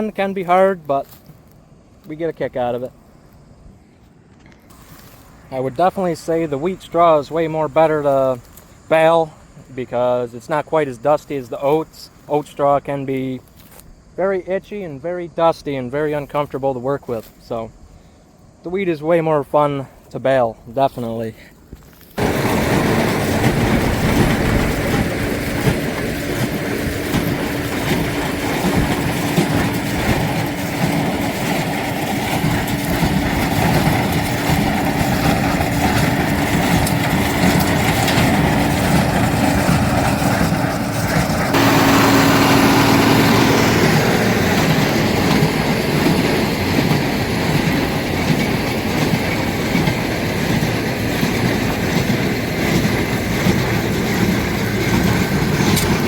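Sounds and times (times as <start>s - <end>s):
tractor diesel engine under load: 4.7s - 13.4s, 22.2s - 56.0s
baler mechanical clatter: 22.2s - 56.0s.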